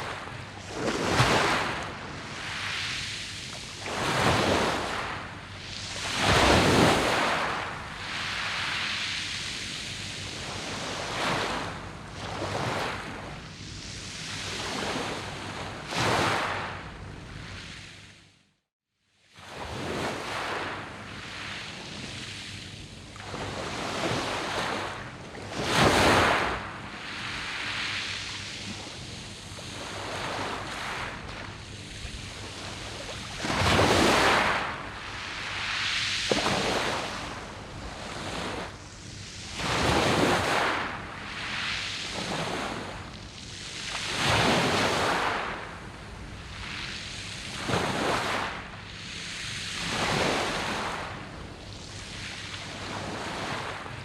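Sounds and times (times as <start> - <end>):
waves washing over pebble beach: 0.1 - 3.1, 3.7 - 5.3, 25.4 - 28.5, 29.7 - 38.7, 39.4 - 43.0, 47.5 - 48.7.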